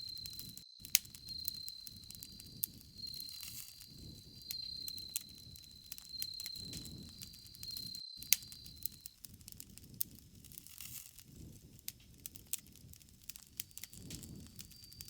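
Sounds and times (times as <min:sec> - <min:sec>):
cricket chirring: 0:00.0 - 0:09.3, 0:13.5 - 0:15.0
bonfire crackling: 0:00.0 - 0:15.0
low rumble of flames: 0:00.0 - 0:15.0.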